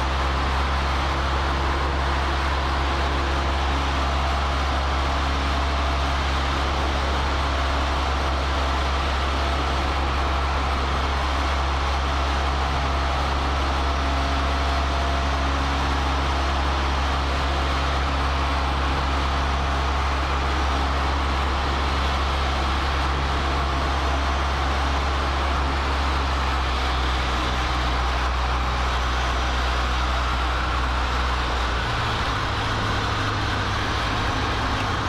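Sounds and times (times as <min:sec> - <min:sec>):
airplane engine droning in flight: 0:00.0 - 0:35.0.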